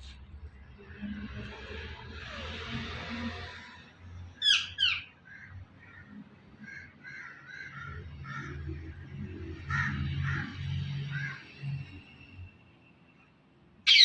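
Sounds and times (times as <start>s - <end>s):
parrot screeching: 4.4s - 5.1s.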